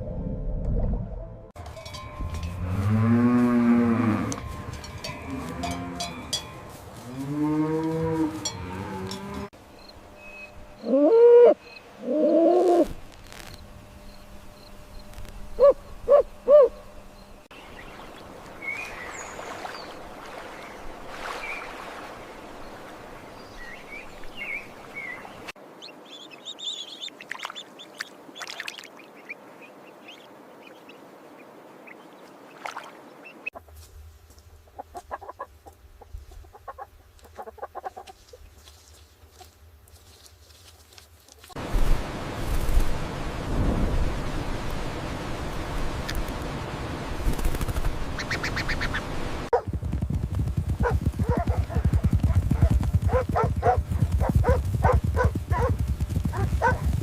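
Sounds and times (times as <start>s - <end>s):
steady outdoor hiss: 1.6s - 57.0s
cattle mooing: 2.5s - 9.5s
small birds chirping: 23.3s - 33.5s.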